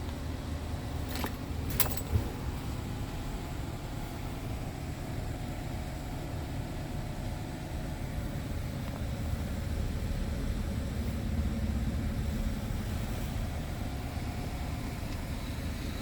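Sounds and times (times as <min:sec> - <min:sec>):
diesel truck engine rumbling: 0:00.1 - 0:04.7.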